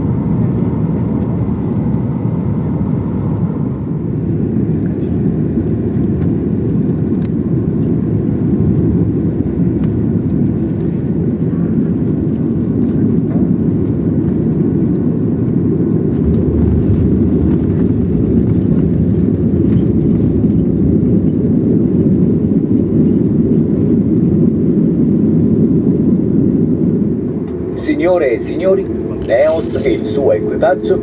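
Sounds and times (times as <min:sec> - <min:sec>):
airplane cabin engine rumble: 0:00.0 - 0:31.0.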